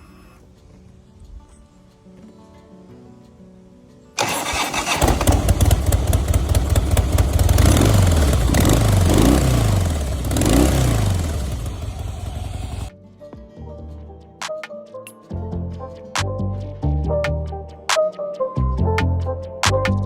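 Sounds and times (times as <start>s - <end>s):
electric starter cranking: 4.2s - 12.9s
motorcycle engine idling and revving: 4.2s - 12.9s.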